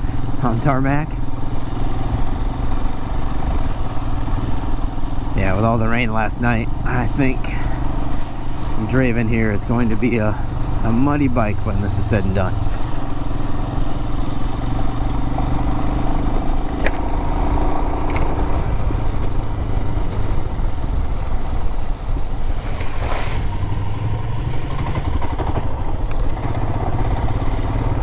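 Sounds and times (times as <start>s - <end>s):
motorcycle engine running: 0.0s - 28.0s
tyre and road noise: 0.0s - 28.0s.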